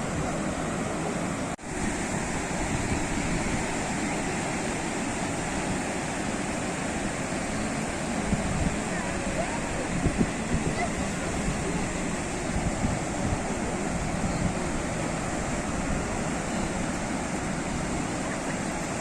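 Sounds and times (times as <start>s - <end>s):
sea waves washing ashore: 0.0s - 19.0s.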